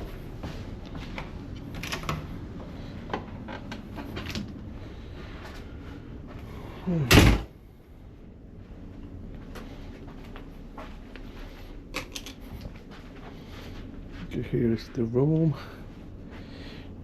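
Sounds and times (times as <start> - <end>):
background hum: 0.0 - 17.0
door shutting thud: 7.0 - 7.5.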